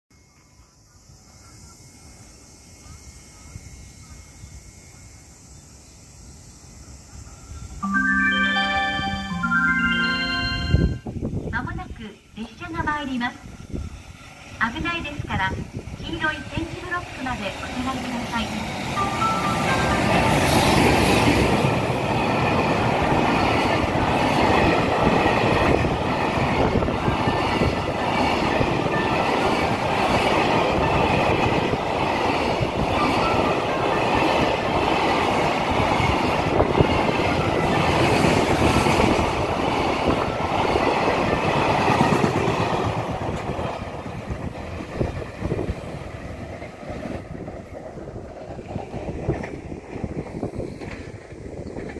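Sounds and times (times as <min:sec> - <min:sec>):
train wheels rolling on rails: 0:11.2 - 0:51.9.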